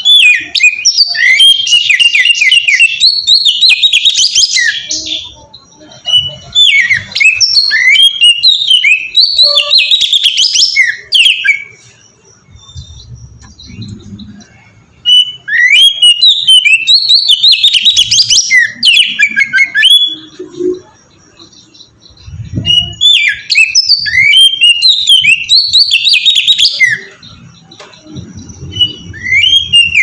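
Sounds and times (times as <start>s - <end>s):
bird singing whistled phrases: 0.0s - 5.3s, 6.1s - 11.8s, 12.4s - 30.0s.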